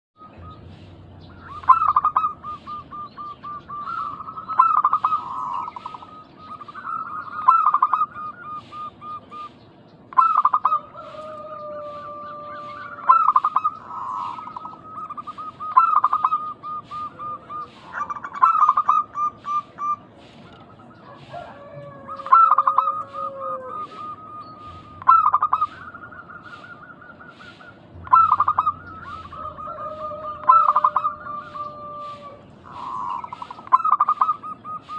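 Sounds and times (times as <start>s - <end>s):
doves cooing: 0.2s - 34.9s.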